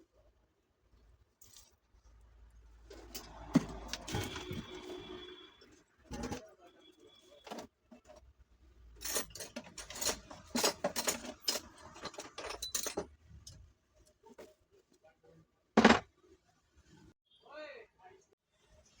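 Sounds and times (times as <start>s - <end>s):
metal parts and tools clinking: 2.9s - 5.1s, 6.1s - 6.5s, 8.9s - 13.7s.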